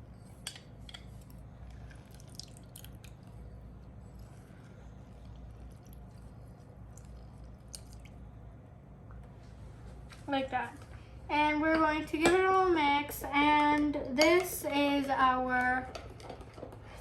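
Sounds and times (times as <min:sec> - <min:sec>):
juice dripping: 0:00.5 - 0:09.3.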